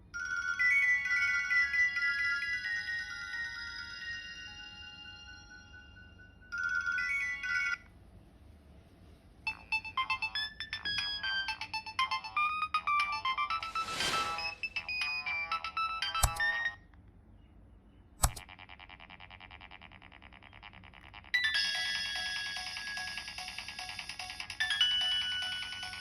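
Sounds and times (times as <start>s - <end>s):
phone ringtone beeping melody: 0.2s - 7.8s, 9.5s - 16.8s, 21.4s - 26.0s.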